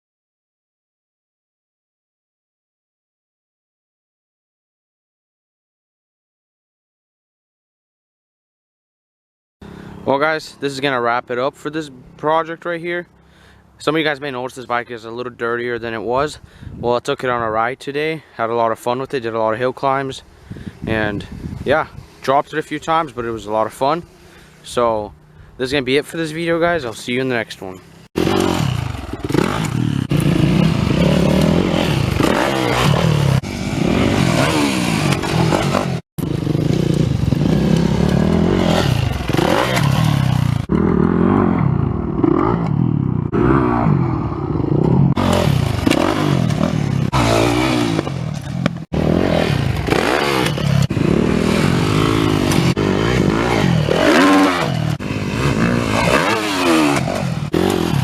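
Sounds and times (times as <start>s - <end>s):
dirt bike engine revving: 27.8s - 58.0s.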